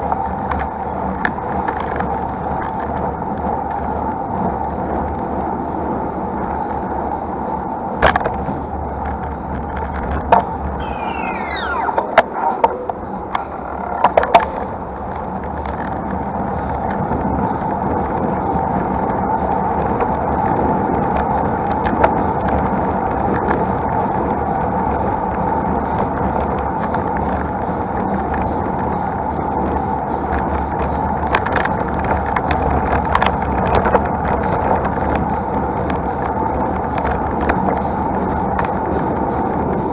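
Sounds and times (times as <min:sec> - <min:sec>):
sharp bike clicks: 0:00.0 - 0:07.1, 0:07.9 - 0:39.9
tyre and wind noise: 0:00.0 - 0:39.9
short falling squeaks: 0:10.8 - 0:12.8.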